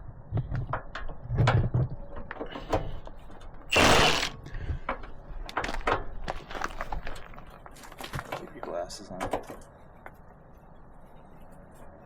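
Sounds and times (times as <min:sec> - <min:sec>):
loud harsh burst: 0:03.7 - 0:04.4.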